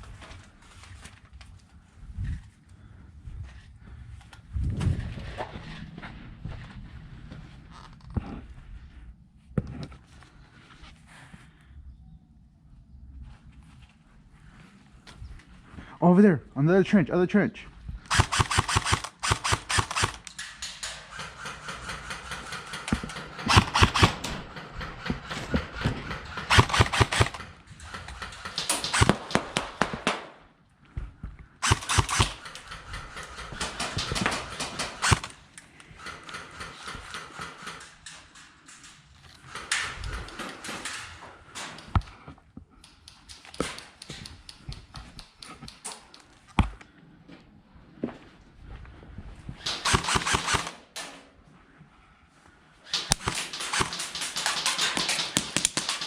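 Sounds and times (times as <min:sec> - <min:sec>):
airsoft guns firing: 0:18.1 - 0:30.5, 0:31.6 - 0:38.0, 0:49.6 - 0:51.1, 0:52.9 - 0:56.0.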